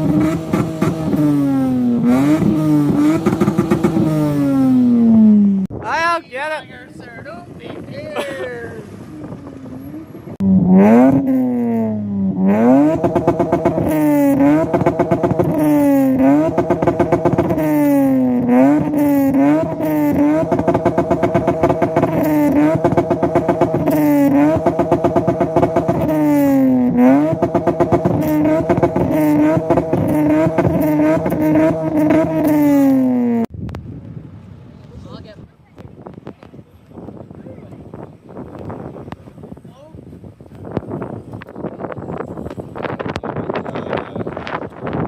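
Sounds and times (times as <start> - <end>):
engine revving hard: 0.0 - 5.7, 9.7 - 33.5.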